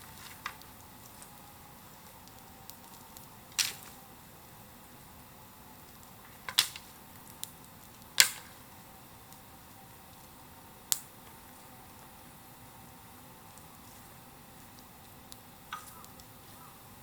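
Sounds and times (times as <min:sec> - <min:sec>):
sharp pops of fire: 0:00.0 - 0:04.0, 0:05.8 - 0:12.1, 0:13.4 - 0:16.4
bonfire crackling: 0:00.0 - 0:17.0.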